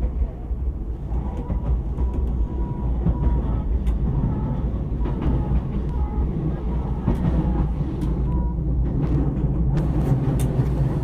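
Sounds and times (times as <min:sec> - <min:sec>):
train low rumble: 0:00.0 - 0:11.0.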